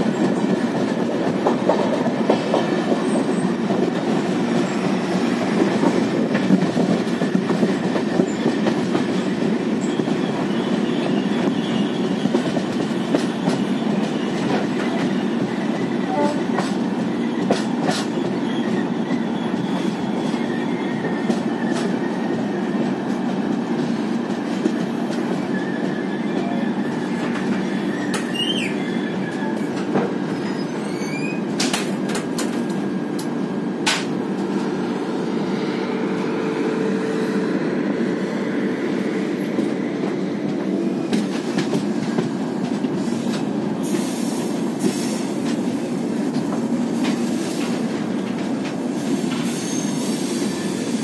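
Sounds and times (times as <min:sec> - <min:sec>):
train wheels rumbling on rail: 0:00.0 - 0:51.0
thin wheel squeals: 0:27.7 - 0:29.7, 0:30.4 - 0:31.5.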